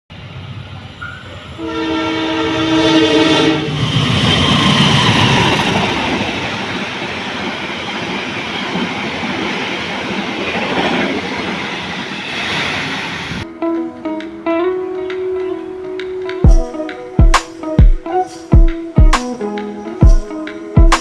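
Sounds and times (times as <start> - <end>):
train rumbling and rattling past: 0.1 - 13.5
train horn: 1.6 - 4.0.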